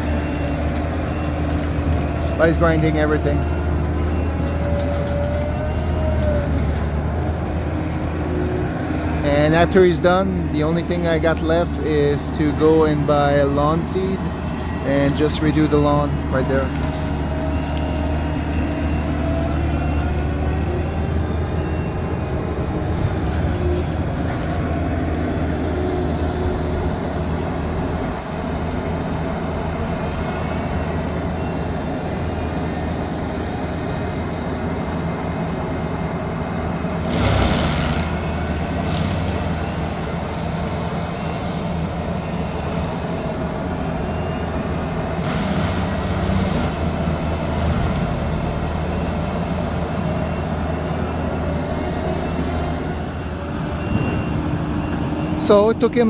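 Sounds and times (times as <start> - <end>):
grinding machine chewing brush: 8.8 - 29.2, 36.5 - 40.8, 44.4 - 49.3.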